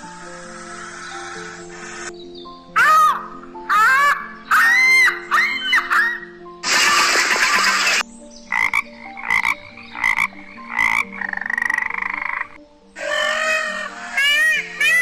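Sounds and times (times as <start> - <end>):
animal croaking: 8.5 - 15.0.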